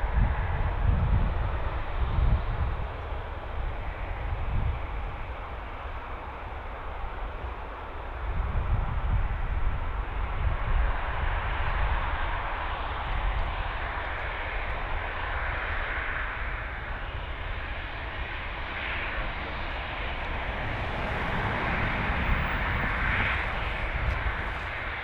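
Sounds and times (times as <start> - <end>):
aircraft engines running: 0.1 - 25.0.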